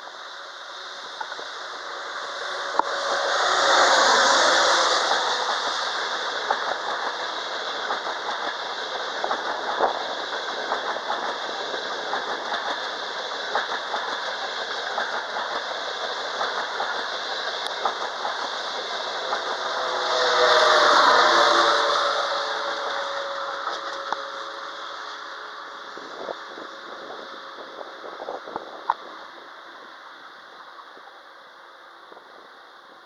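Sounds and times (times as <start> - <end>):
high-speed train rumbling past: 0.0 - 33.0
power car humming whine: 0.6 - 5.9, 19.2 - 24.7
wheels clicking over rail joints: 1.2 - 29.2.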